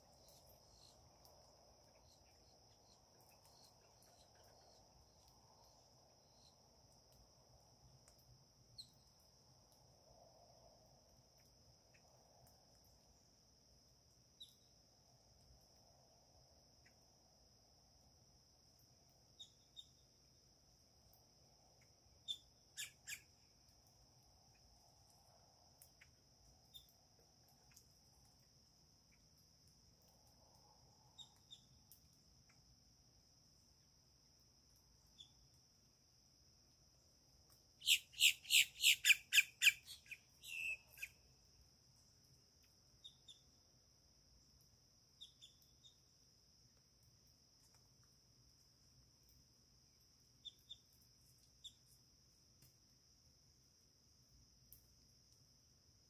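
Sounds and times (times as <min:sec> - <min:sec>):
bird chirps: 0:22.2 - 0:23.4, 0:37.8 - 0:41.2, 0:45.2 - 0:46.0.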